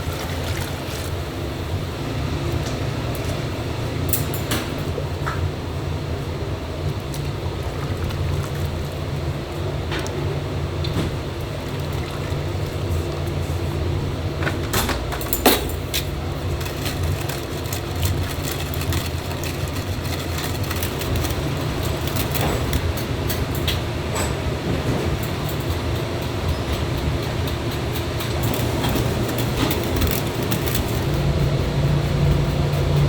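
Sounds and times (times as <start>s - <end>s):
low mechanical hum: 0.0s - 33.0s
clatter: 15.2s - 24.3s.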